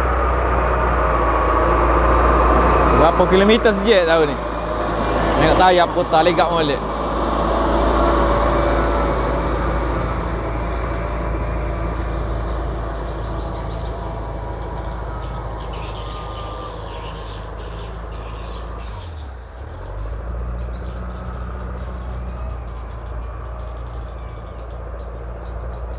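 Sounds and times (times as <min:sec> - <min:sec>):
farm machine engine running: 0:00.0 - 0:19.0.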